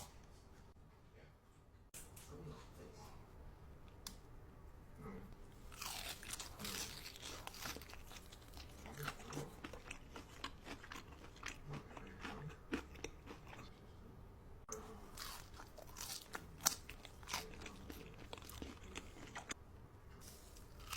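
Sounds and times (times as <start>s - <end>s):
person chewing crunchy food: 5.7s - 13.7s, 14.7s - 19.6s, 20.5s - 20.9s.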